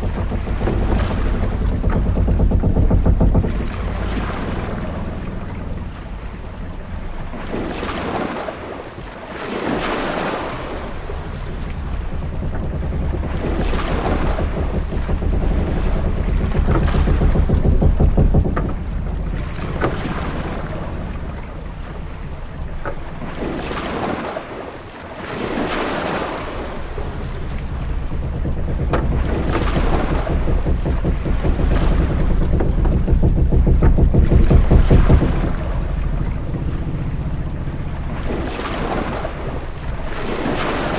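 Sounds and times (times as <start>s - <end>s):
faint knocks and creaks: 0.0s - 8.4s, 10.5s - 24.2s, 25.8s - 40.9s
low rumble of wind and sea: 0.0s - 40.9s
waves washing against hull: 0.0s - 40.9s.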